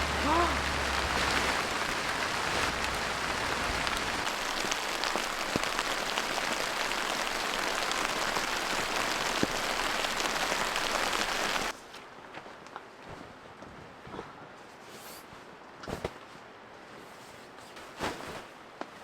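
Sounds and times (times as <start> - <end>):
heavy rain falling: 0.0 - 11.7.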